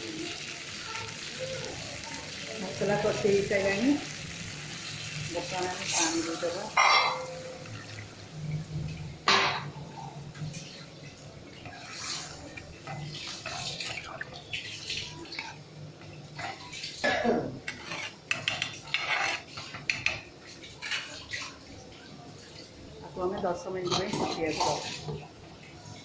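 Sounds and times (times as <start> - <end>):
metal spoon clinking in pot: 6.8 - 7.5.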